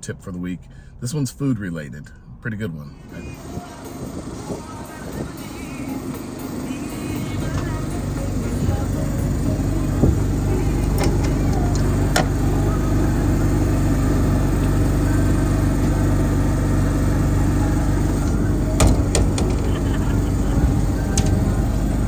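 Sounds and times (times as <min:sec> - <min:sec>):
engine humming: 0:00.0 - 0:22.0
sharp clicks and knocks: 0:10.8 - 0:12.4, 0:18.0 - 0:22.0.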